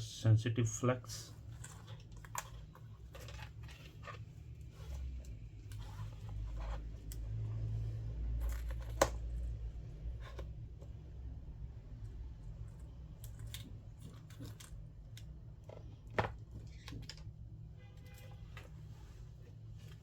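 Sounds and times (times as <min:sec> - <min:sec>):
low steady hum: 0:00.0 - 0:20.0
light scratches scrapes and clicks: 0:01.4 - 0:10.9.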